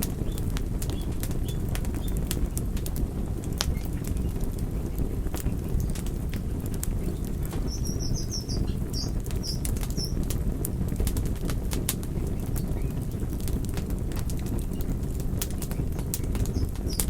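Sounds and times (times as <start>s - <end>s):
wood fire crackling: 0.0s - 17.0s
bird chirping: 0.1s - 2.2s, 6.9s - 10.2s, 16.1s - 17.0s.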